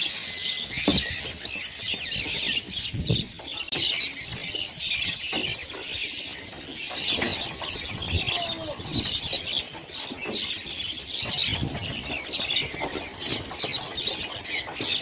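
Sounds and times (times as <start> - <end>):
flock of birds chirping: 0.0 - 15.0.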